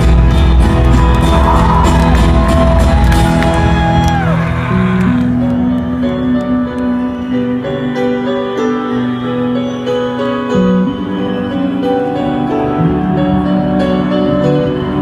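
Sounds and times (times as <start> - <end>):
piano playing: 0.0 - 15.0.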